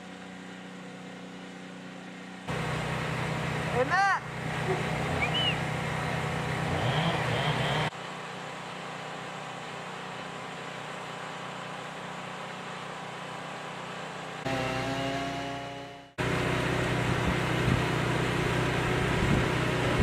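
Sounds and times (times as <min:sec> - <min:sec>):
machine hum: 0:00.0 - 0:07.9, 0:14.4 - 0:20.0
mechanical drone: 0:02.4 - 0:07.9, 0:14.4 - 0:20.0.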